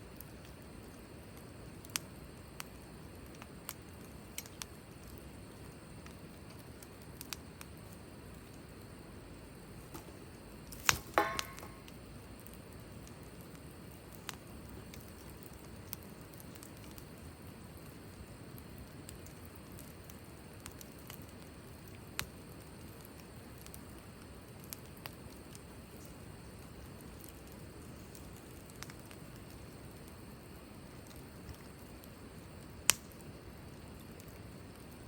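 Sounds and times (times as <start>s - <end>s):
campfire hissing: 0.0s - 35.0s
fire crackles and pops: 0.0s - 35.0s
clicks and knocks: 10.9s - 11.9s.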